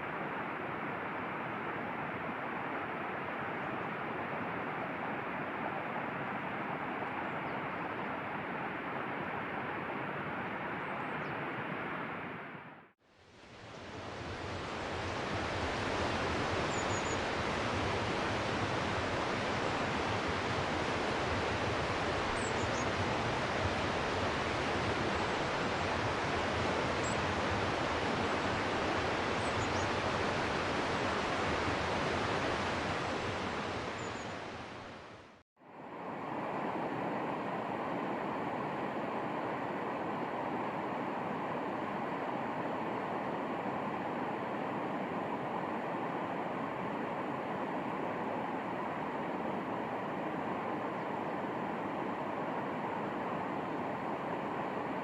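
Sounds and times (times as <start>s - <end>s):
running water rushing: 13.1s - 55.0s.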